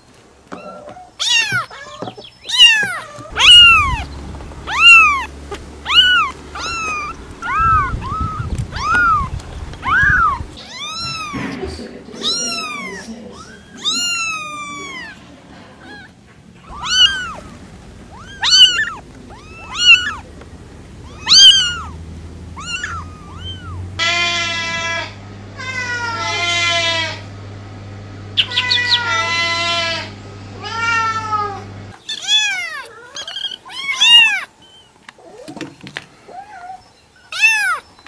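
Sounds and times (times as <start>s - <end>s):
cat meowing: 0.5s - 11.6s, 12.2s - 20.3s, 20.9s - 27.3s, 28.4s - 34.5s, 36.3s - 37.9s
low steady hum: 3.2s - 32.0s.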